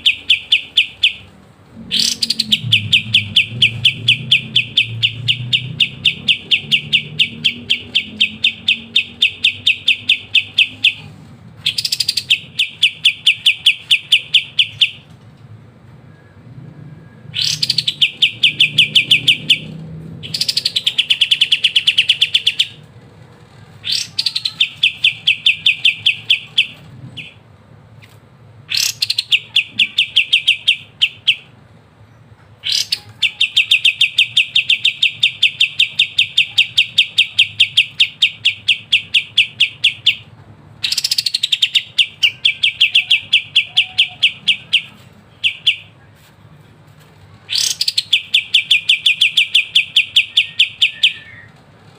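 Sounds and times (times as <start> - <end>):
bird singing rattling trill: 0.0 - 1.3, 1.9 - 11.0, 11.6 - 15.1, 17.4 - 22.8, 23.8 - 27.4, 28.7 - 31.5, 32.1 - 45.9, 47.5 - 51.5.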